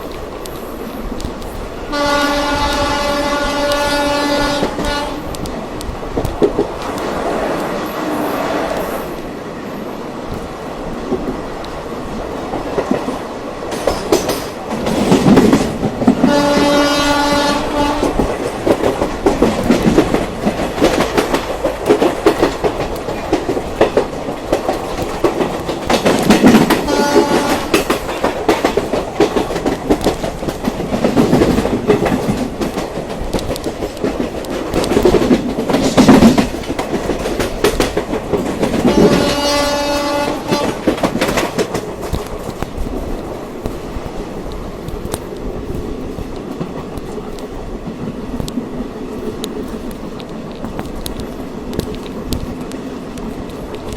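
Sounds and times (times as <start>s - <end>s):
train wheels clattering over rails: 0.0s - 53.9s
train horn: 1.9s - 5.4s, 16.2s - 18.2s, 26.8s - 27.9s, 38.8s - 41.0s.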